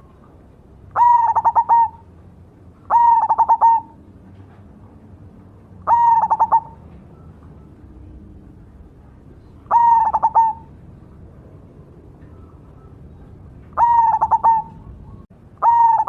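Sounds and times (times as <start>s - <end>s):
dove cooing: 0.9s - 2.1s, 2.9s - 4.1s, 5.8s - 8.2s, 9.6s - 10.8s, 12.3s - 16.0s.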